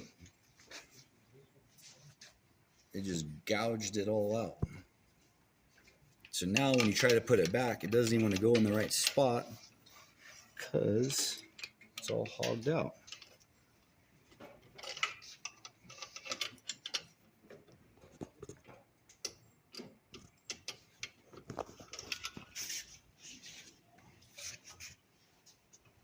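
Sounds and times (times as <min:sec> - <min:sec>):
metal clicks and taps: 0:06.5 - 0:09.2, 0:11.3 - 0:13.4, 0:14.8 - 0:22.4.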